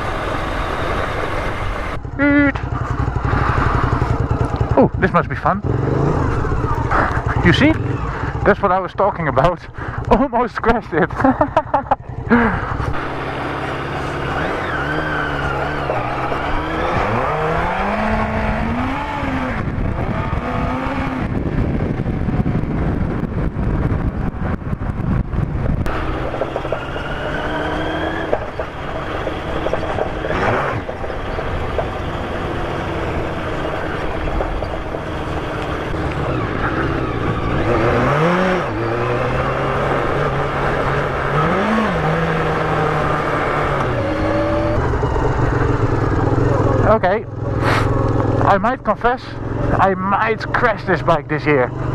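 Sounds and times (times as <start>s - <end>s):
motorcycle engine revving: 0.0s - 51.9s
rough road noise: 0.0s - 51.9s
wind noise: 15.9s - 46.4s.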